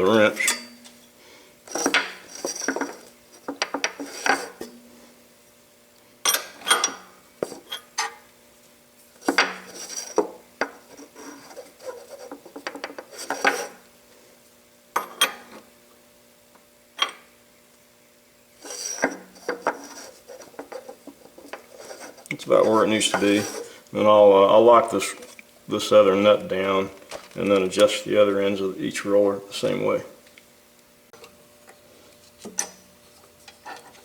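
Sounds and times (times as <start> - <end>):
faint steady hum: 0.0 - 34.0
wrench clinking on metal nuts: 0.4 - 0.8.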